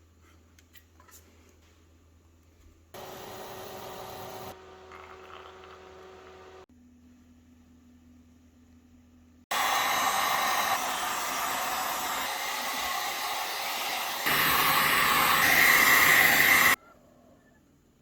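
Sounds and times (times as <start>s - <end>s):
electric blower rushing air: 9.5s - 16.8s.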